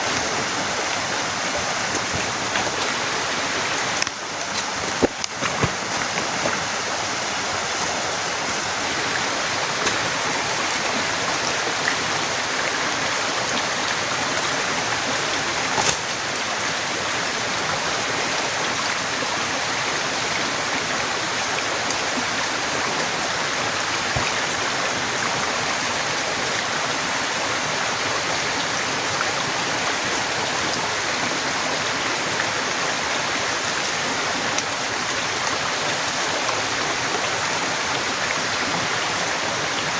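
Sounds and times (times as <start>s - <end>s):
heavy rain pouring: 2.8s - 4.1s, 8.8s - 34.4s
click: 8.8s - 16.7s.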